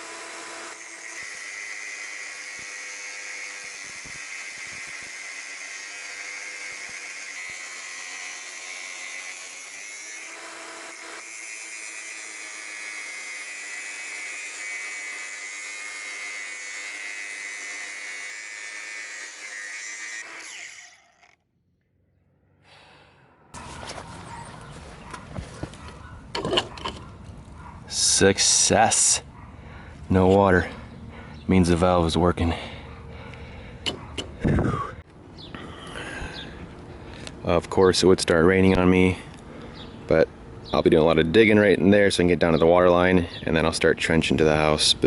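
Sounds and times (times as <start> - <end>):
power tool whining on metal: 0.0 - 21.6.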